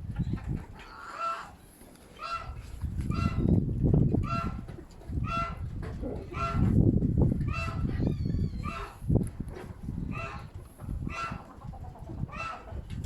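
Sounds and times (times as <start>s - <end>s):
wind buffeting microphone: 0.0s - 0.9s, 2.2s - 13.0s
farm bird honking: 2.2s - 3.4s, 4.2s - 4.6s, 10.1s - 11.6s.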